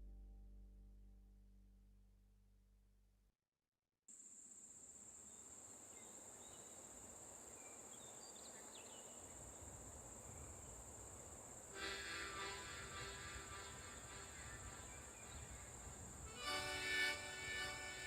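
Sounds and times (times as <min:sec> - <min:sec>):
cricket-like chirring: 0:04.1 - 0:17.9
soft music: 0:16.3 - 0:18.0.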